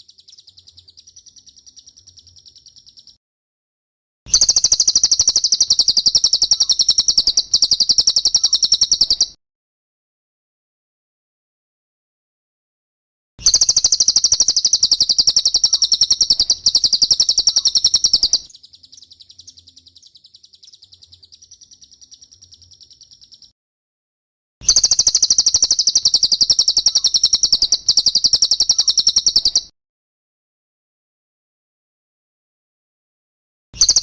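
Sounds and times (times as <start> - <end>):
bird trilling: 4.3 - 9.4, 13.4 - 23.5, 24.6 - 29.7.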